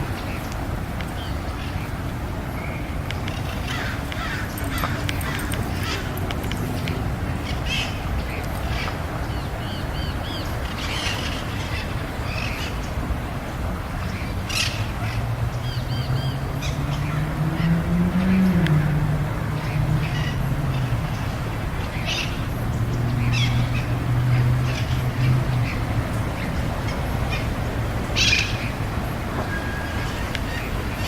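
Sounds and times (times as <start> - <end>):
birds harsh cries: 2.5 - 13.0, 19.6 - 31.0.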